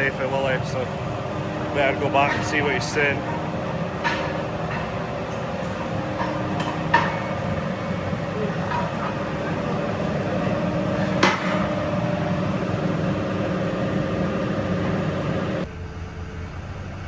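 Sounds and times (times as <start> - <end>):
sharp metallic clank: 0.0 - 12.9
workshop machinery humming: 0.0 - 17.0.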